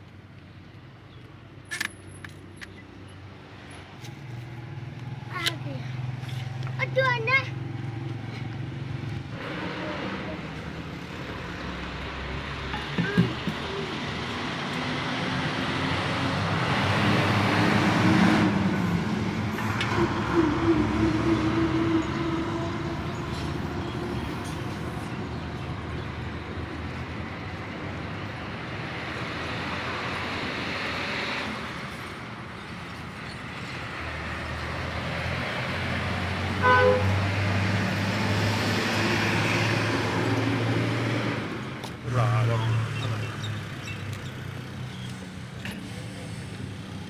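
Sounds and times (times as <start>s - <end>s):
road traffic noise: 0.0s - 47.0s
vehicle horn toot: 36.6s - 37.2s.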